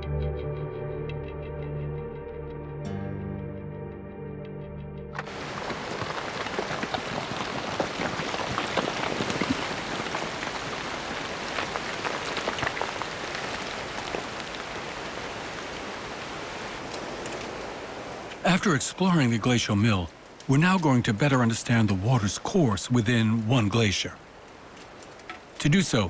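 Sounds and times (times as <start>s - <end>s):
running water splashing: 5.2s - 26.0s.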